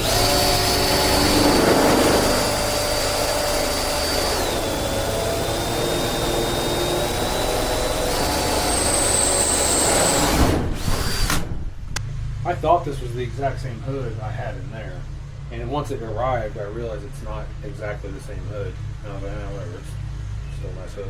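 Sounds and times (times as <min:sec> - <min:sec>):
electric drill whining: 0:00.0 - 0:11.5.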